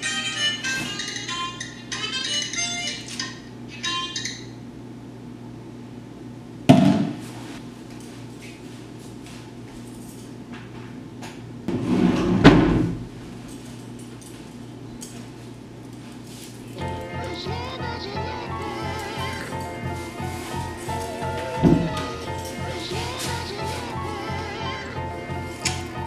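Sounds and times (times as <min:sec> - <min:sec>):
rustling: 0:19.0 - 0:24.0.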